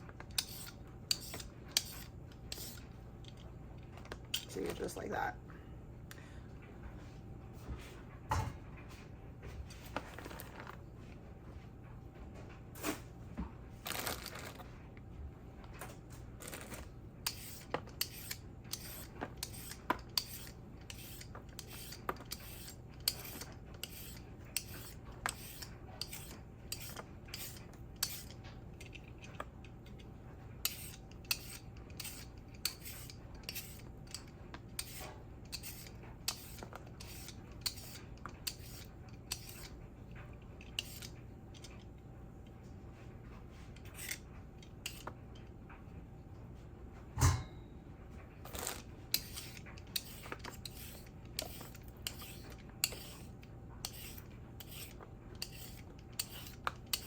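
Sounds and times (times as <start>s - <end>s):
knife cutting on a cutting board: 0.3s - 2.9s, 16.6s - 28.4s, 30.6s - 39.8s, 40.8s - 41.1s, 43.8s - 44.2s, 48.5s - 57.0s.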